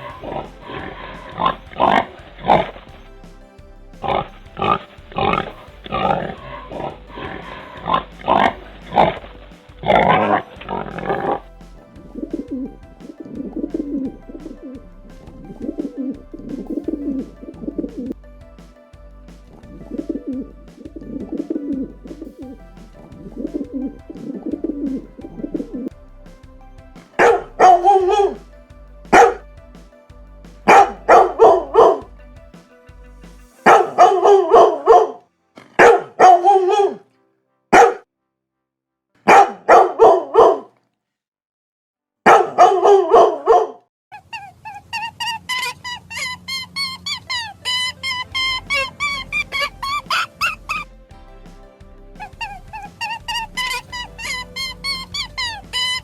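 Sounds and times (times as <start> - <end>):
dog barking: 35.8 - 37.0, 37.7 - 38.0, 39.2 - 40.7, 42.3 - 43.8
dog yelping: 35.8 - 37.0, 37.8 - 38.0, 39.3 - 40.7, 42.3 - 50.8.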